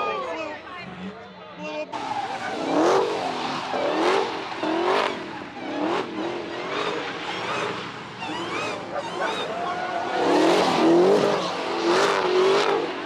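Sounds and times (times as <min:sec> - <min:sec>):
tyres squealing: 0:01.9 - 0:11.7
car engine revving hard: 0:02.0 - 0:13.0.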